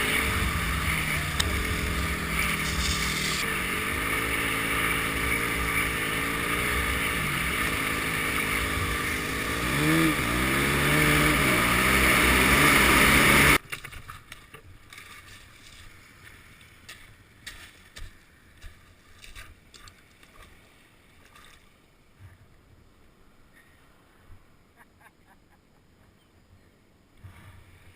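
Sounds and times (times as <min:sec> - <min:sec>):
engine running: 0:00.0 - 0:13.6.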